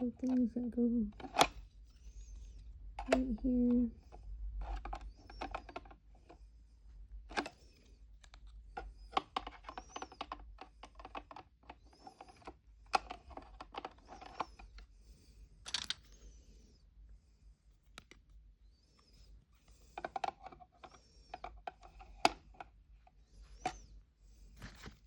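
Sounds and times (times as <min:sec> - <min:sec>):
plastic toy pieces clicking: 0:08.3 - 0:14.8, 0:15.6 - 0:16.1.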